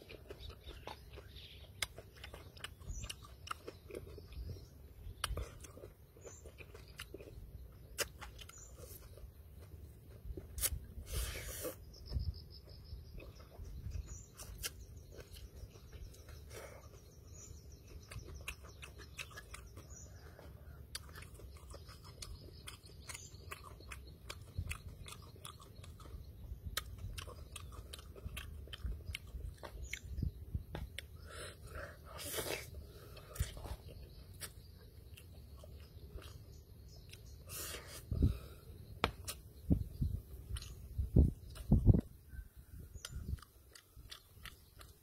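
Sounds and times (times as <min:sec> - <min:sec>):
man chewing noodles: 0:00.0 - 0:45.0.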